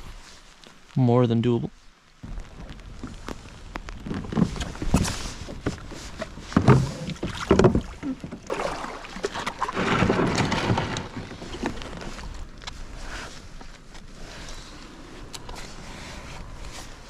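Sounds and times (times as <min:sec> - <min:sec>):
water swash: 0:02.2 - 0:13.0
paddle splashes: 0:02.3 - 0:12.4
hollow knocks against hull: 0:04.0 - 0:11.3.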